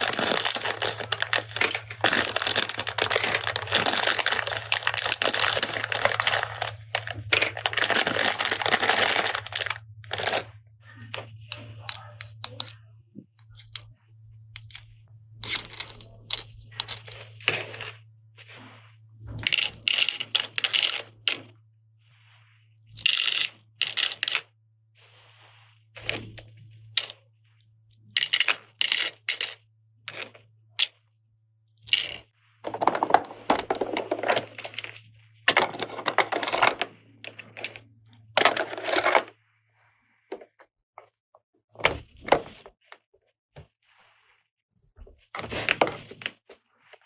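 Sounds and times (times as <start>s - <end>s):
plastic toy parts clicking: 0.0s - 10.4s, 14.6s - 17.0s, 19.4s - 21.4s, 23.0s - 24.5s, 28.1s - 30.9s, 31.9s - 34.9s
low steady hum: 0.0s - 24.2s.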